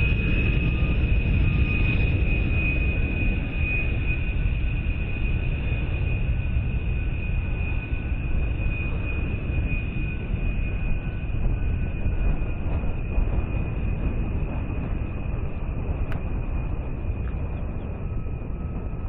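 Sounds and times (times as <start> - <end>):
engine low rumble: 0.0 - 19.0
high whine: 0.0 - 19.0.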